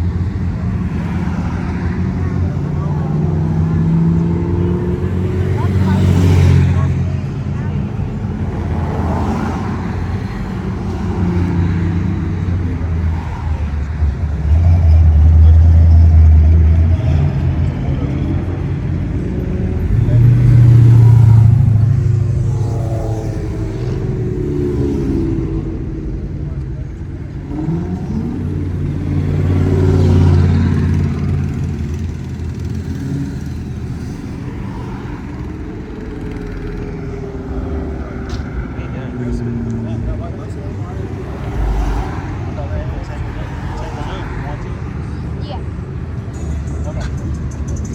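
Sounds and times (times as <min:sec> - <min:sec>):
car engines rumbling past: 0:00.0 - 0:47.9
car engine driving past: 0:32.6 - 0:44.9.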